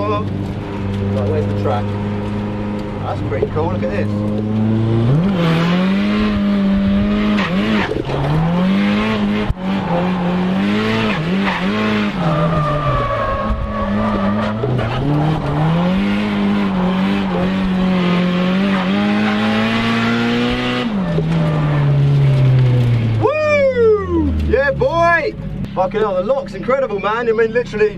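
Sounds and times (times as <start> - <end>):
car engine revving hard: 1.0 - 23.0.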